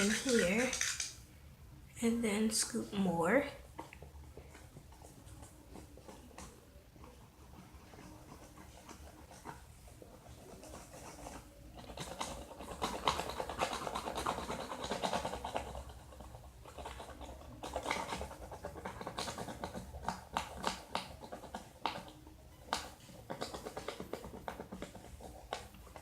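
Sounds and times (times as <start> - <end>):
spoon scraping wet slime: 0.0 - 1.2.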